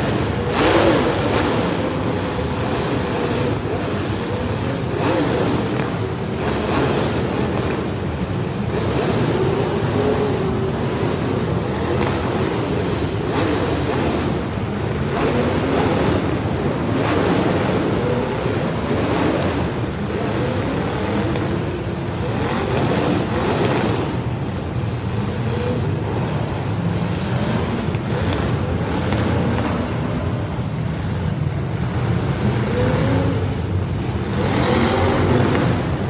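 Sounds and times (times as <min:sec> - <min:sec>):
car engines revving: 0:00.0 - 0:36.0.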